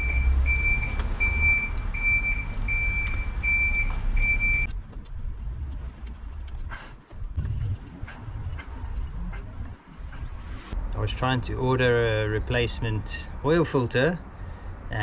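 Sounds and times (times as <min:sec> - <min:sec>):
vehicle reversing alarm beeps: 0:00.0 - 0:04.7
low engine rumble: 0:00.0 - 0:13.6.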